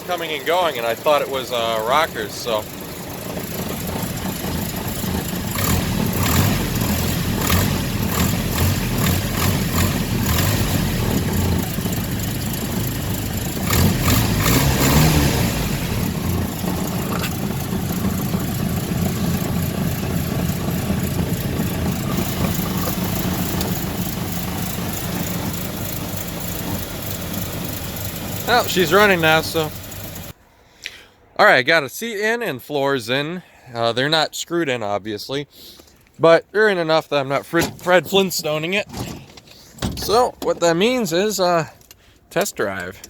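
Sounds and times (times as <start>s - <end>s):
car engine idling and revving: 0.0s - 30.4s
engine tapping: 0.0s - 30.4s.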